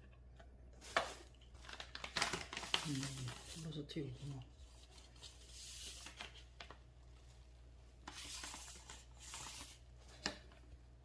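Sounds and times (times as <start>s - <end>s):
packaging rustling: 0.8s - 6.8s, 8.0s - 10.5s.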